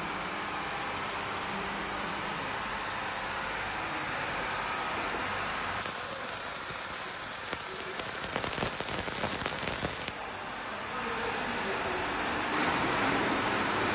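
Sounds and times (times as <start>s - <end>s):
ultrasonic cleaner hissing and fizzing: 0.0s - 13.9s.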